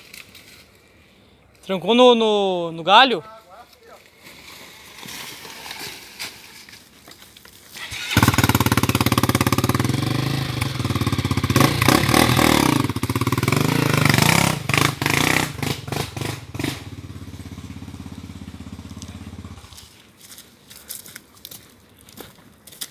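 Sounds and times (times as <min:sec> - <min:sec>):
motorcycle engine revving: 0:07.8 - 0:19.9.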